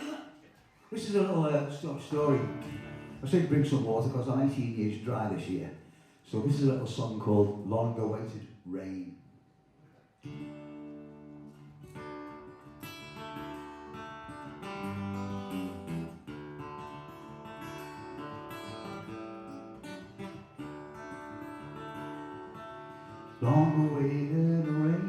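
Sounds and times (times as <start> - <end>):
acoustic guitar playing: 1.0 - 4.9, 10.2 - 25.0.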